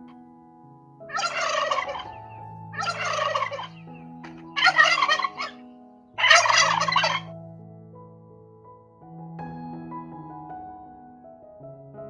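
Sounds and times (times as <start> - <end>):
turkey gobbling: 1.1 - 5.6, 6.2 - 7.3.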